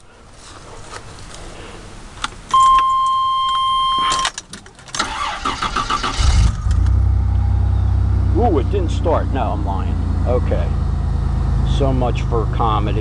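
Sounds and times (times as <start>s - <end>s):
electronic warning chime: 2.5s - 4.3s
car keys jingling in ignition: 2.5s - 6.2s
car starter cranking: 4.0s - 7.1s.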